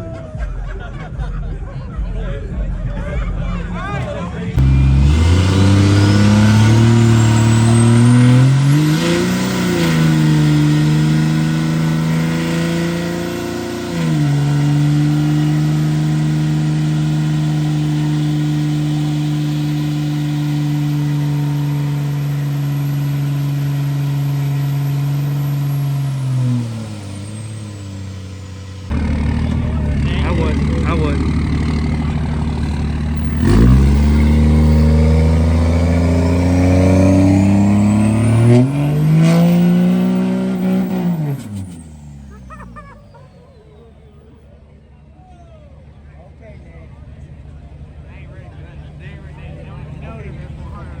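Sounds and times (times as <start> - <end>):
truck engine revving: 3.9 - 44.3.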